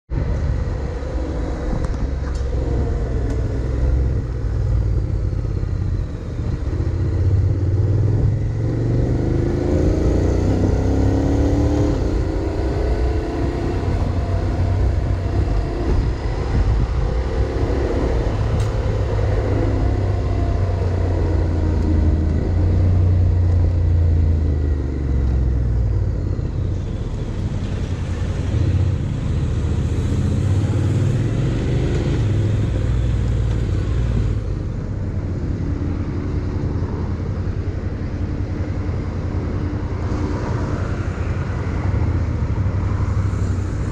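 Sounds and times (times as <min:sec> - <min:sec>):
motorcycle engine revving: 0:01.0 - 0:34.8.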